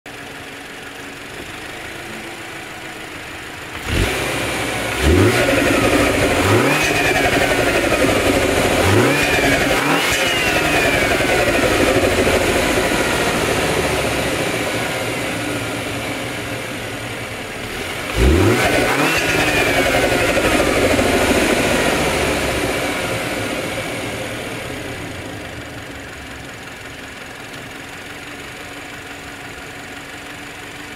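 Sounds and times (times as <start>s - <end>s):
car engine idling and revving: 0.1s - 30.9s.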